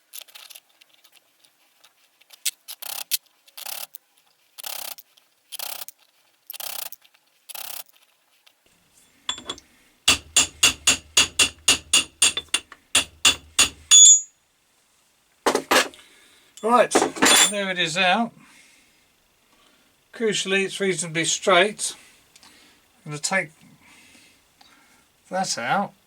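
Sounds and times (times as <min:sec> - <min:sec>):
metal rasping strokes: 0:09.3 - 0:14.2
light ringing metal taps: 0:09.3 - 0:14.3
loud ringing metal clink: 0:09.3 - 0:14.3, 0:16.6 - 0:17.6.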